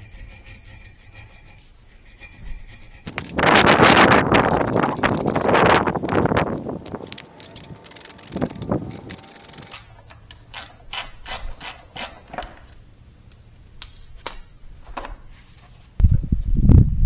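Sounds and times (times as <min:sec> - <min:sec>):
ratchet wrench clicking: 0:03.1 - 0:09.8.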